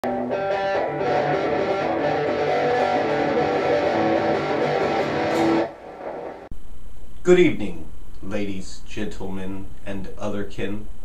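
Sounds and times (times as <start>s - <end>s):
strummed guitar intro music: 0.0s - 6.5s.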